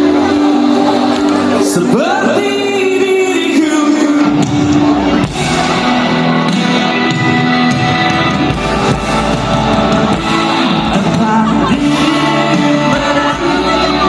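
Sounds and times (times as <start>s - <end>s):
amplified band music: 0.0s - 14.0s
person singing long notes: 10.1s - 14.0s.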